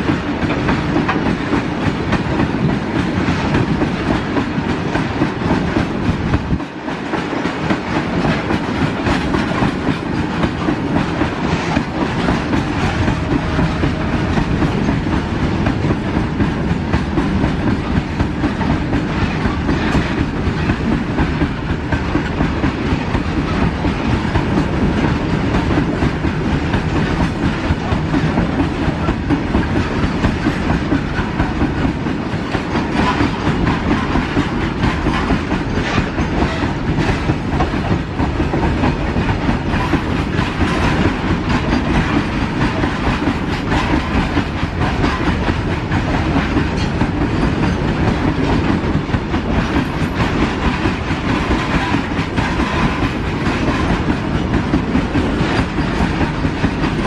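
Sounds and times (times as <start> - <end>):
train wheels clattering on track: 0.0 - 57.0.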